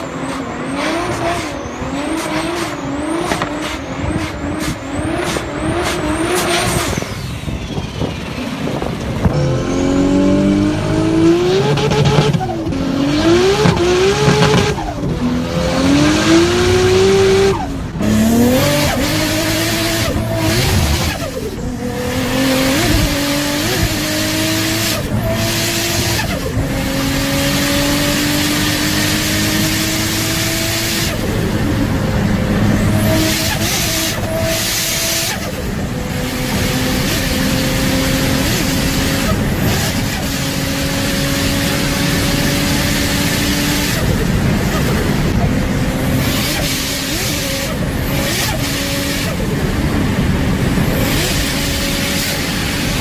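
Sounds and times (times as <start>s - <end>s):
turbocharged car engine accelerating: 0.0s - 53.0s
loud rushing noise: 14.7s - 28.0s.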